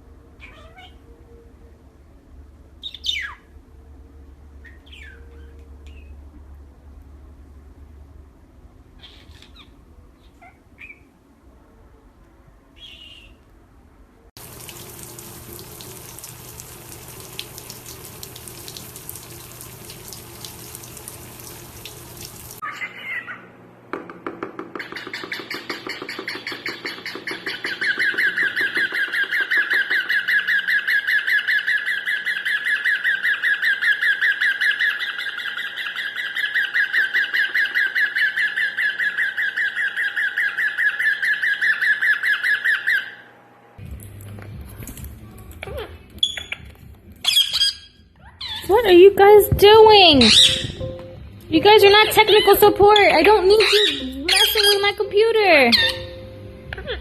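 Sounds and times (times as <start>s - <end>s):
parrot chirping: 0.4s - 1.0s, 2.8s - 3.5s, 4.6s - 6.2s, 22.6s - 23.5s, 24.8s - 43.3s, 45.6s - 49.1s, 49.8s - 51.0s, 51.7s - 57.0s.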